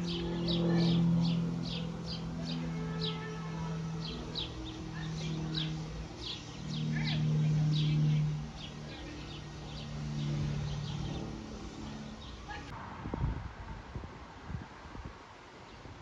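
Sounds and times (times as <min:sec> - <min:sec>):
small birds chirping: 0:00.0 - 0:12.7
low steady hum: 0:00.0 - 0:13.4.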